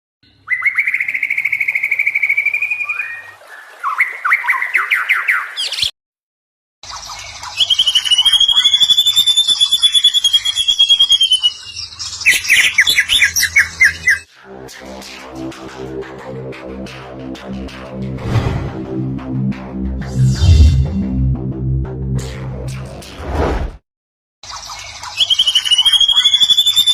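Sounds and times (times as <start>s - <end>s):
bird calling in rattling trills: 6.9s - 14.3s, 24.4s - 26.9s.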